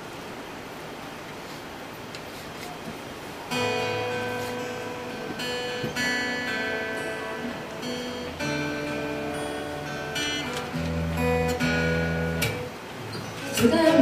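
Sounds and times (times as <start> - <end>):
acoustic guitar chords: 3.5 - 14.0.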